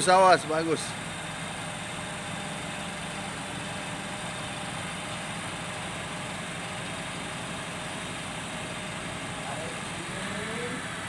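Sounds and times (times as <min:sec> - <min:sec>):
truck engine running steadily: 0:00.0 - 0:11.0.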